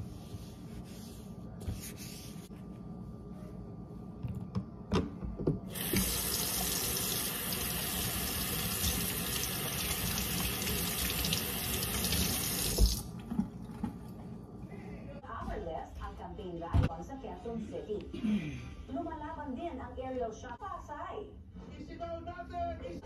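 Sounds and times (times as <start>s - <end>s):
faucet running into steel sink: 5.7s - 13.1s.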